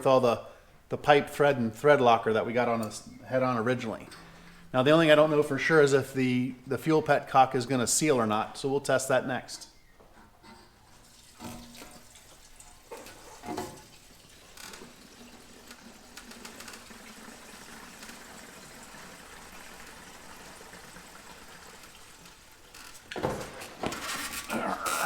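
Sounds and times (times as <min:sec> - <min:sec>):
fuel pouring into a tank: 0:10.8 - 0:23.5.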